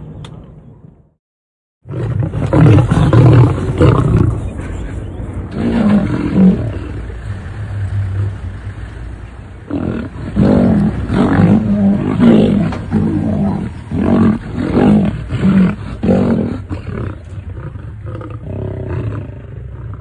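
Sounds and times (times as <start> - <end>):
lion roaring: 1.9 - 4.5, 5.5 - 7.2, 9.7 - 20.0.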